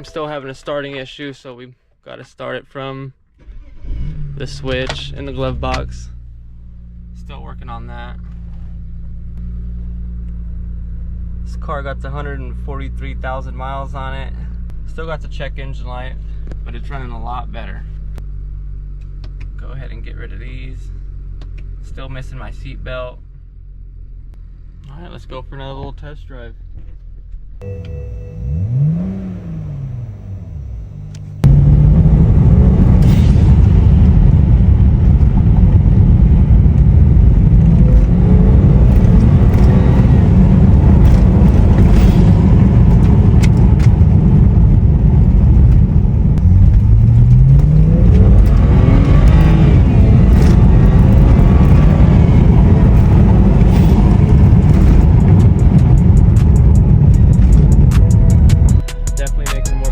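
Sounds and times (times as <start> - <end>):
road noise: 3.2 - 25.3, 26.5 - 58.8
car engine revving: 3.4 - 13.5, 27.6 - 58.8
wind noise: 31.4 - 58.8.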